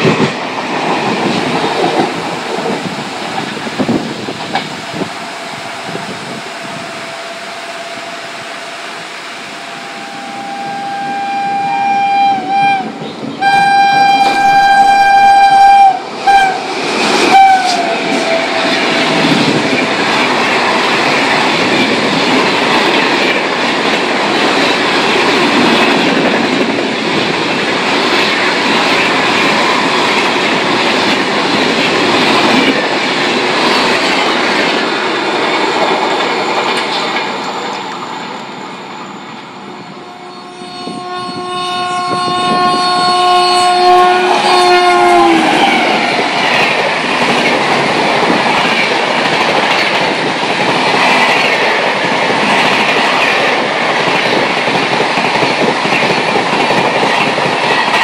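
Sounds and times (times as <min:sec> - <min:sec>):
train passing with rush: 0:00.0 - 0:58.0
train horn blasts: 0:04.9 - 0:16.7, 0:17.3 - 0:19.1, 0:39.8 - 0:46.0.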